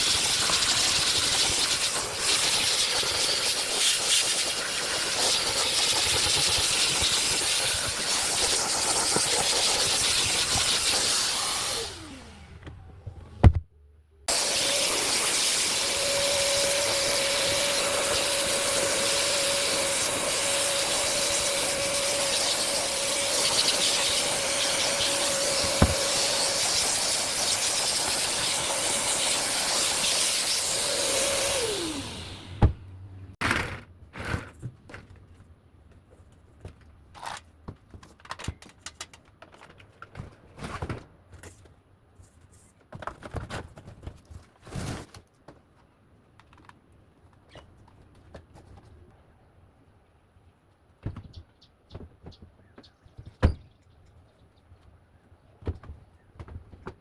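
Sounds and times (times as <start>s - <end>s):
vacuum cleaner running: 0.0s - 12.6s, 14.3s - 32.8s.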